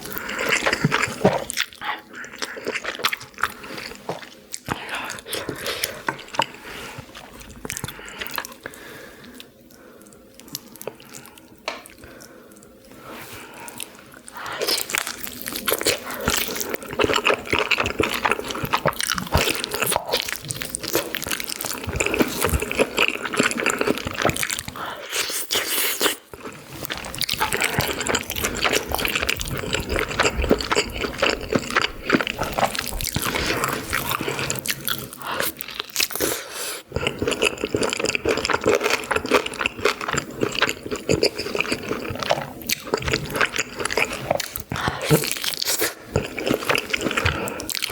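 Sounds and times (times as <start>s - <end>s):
wet chewing and biting: 14.6s - 36.4s.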